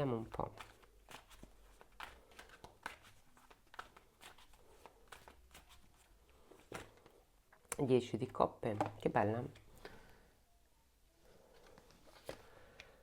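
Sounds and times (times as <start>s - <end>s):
cards flicking and rustling: 0.4s - 7.2s, 11.6s - 13.0s.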